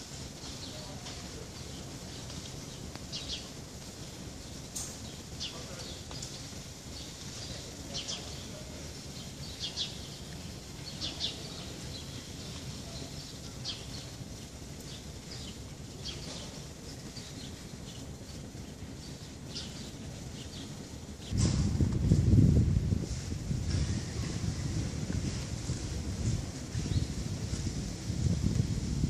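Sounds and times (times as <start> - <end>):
small birds chirping: 0.2 - 21.4, 23.6 - 28.4
low background rumble: 8.5 - 29.0.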